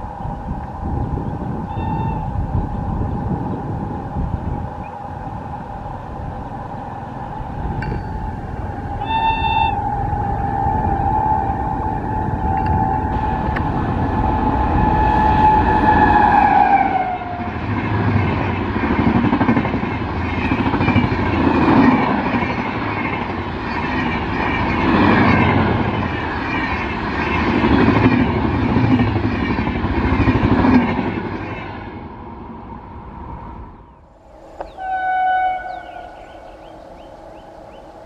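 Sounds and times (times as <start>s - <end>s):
train horn: 1.6s - 2.7s, 7.6s - 17.8s, 34.2s - 38.0s
train wheels clattering on rails: 17.3s - 32.0s.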